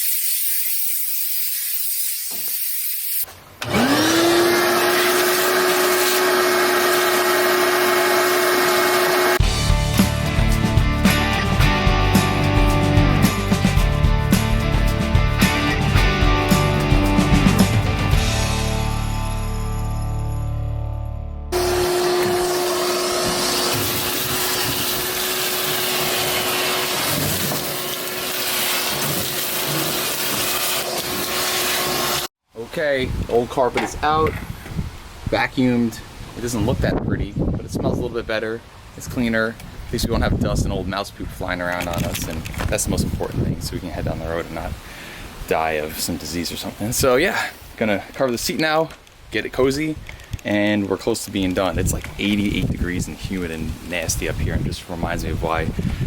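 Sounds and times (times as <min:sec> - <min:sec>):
air hissing: 0:00.0 - 0:03.3
vacuum cleaner motor whining: 0:03.6 - 0:09.4, 0:21.6 - 0:32.3.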